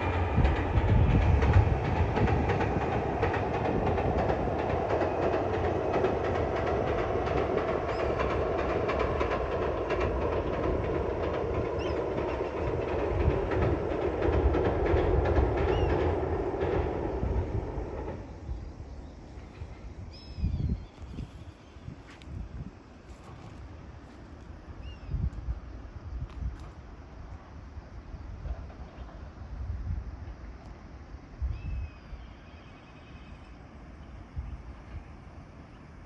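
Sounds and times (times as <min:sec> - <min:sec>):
wheels clacking over rail joints: 0:00.0 - 0:20.1
train passing: 0:00.0 - 0:36.0.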